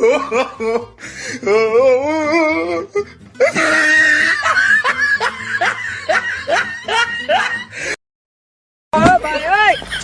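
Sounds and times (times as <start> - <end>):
laughter sound effects: 0.0 - 0.9, 3.4 - 7.8
music: 0.0 - 8.0.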